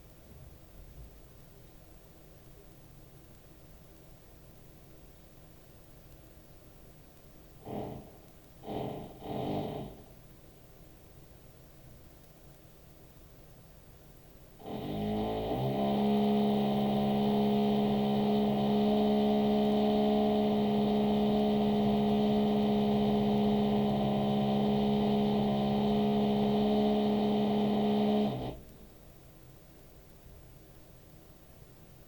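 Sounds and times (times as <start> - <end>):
electric drill whining: 14.6 - 28.7.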